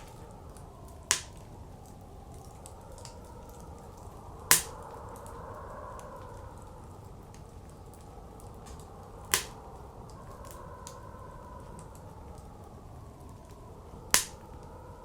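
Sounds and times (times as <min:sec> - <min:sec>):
blizzard wind blowing: 0:00.0 - 0:15.0
wood fire crackling: 0:00.0 - 0:15.0.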